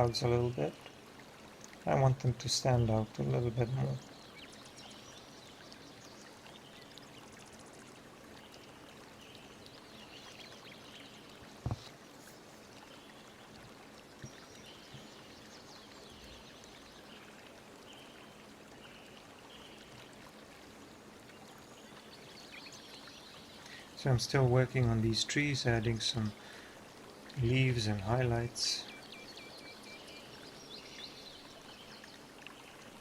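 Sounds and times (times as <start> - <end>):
faint background hiss: 0.0 - 33.0.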